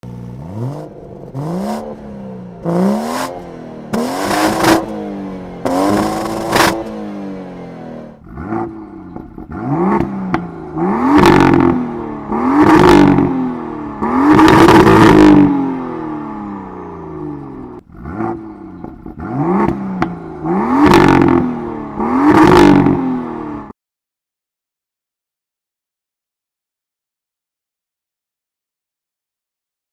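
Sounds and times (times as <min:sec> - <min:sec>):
car engine revving: 0:00.0 - 0:23.7.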